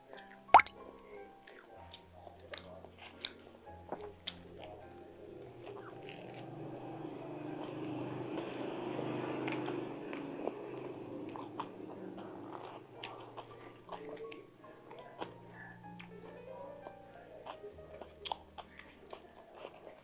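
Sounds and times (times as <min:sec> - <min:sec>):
person chewing a sandwich: 0:01.4 - 0:04.9, 0:11.3 - 0:16.4, 0:17.3 - 0:20.0.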